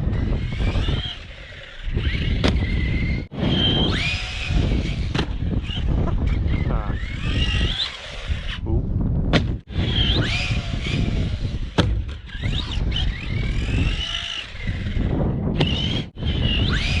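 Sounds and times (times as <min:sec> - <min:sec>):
electric motor whine: 0:00.0 - 0:08.6, 0:09.7 - 0:17.0.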